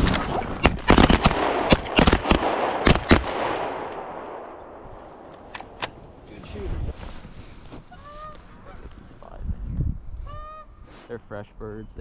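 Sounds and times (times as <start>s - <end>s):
shotgun blasts: 0.0s - 4.5s.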